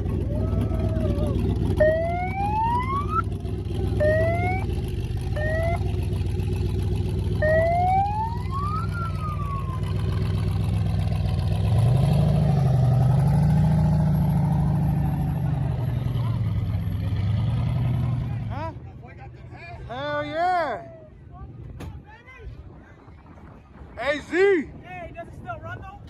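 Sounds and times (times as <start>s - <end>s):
truck engine revving: 0.0s - 18.8s
low engine rumble: 0.0s - 26.0s.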